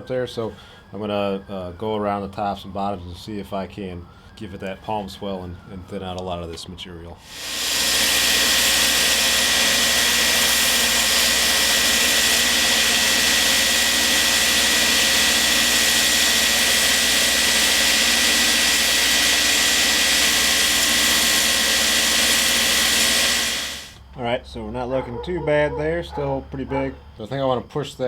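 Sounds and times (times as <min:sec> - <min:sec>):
belt grinder rushing noise: 0:07.2 - 0:24.0.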